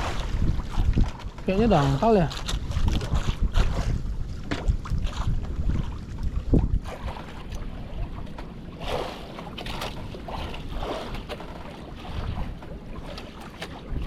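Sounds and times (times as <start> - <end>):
strong wind buffeting microphone: 0.0 - 9.0
water sloshing against hull: 0.0 - 14.0
water splashes: 0.0 - 14.0.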